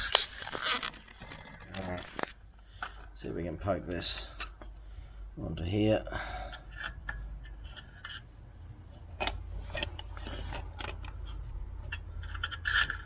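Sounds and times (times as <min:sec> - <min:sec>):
metal rubbing squeaks: 0:00.0 - 0:02.0
metal parts clicking and knocking: 0:09.2 - 0:13.0.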